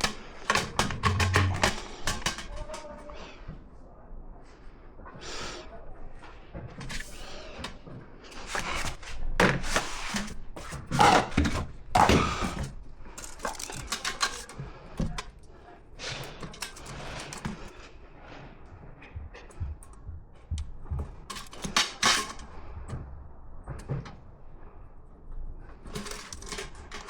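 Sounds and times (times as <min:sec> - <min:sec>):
tool clicks and knocks: 0:00.0 - 0:02.9, 0:08.4 - 0:15.5, 0:20.6 - 0:23.0.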